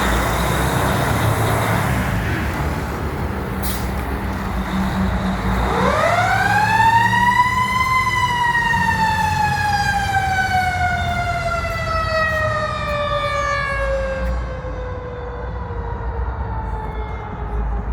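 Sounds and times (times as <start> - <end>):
truck engine rumbling: 0.0 - 17.9
mechanical siren wailing: 5.6 - 17.6.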